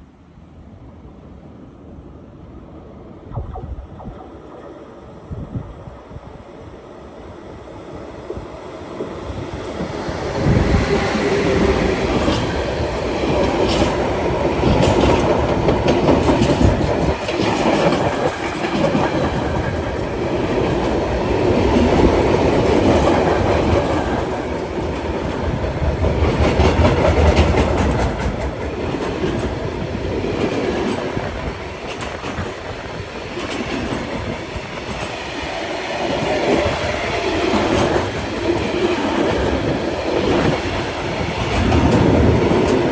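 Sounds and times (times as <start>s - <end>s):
train passing: 0.0s - 42.9s
wheels clacking over rail joints: 10.7s - 42.9s.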